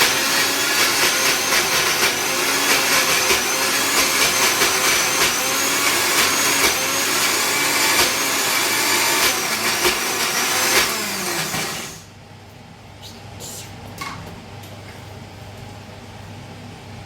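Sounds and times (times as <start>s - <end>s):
mixer grinder running: 0.0s - 12.1s.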